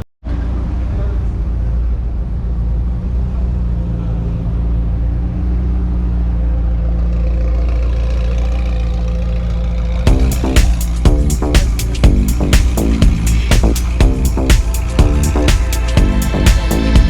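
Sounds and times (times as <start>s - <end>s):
car engine idling: 0.3s - 17.0s
music with a hard beat: 10.1s - 17.0s.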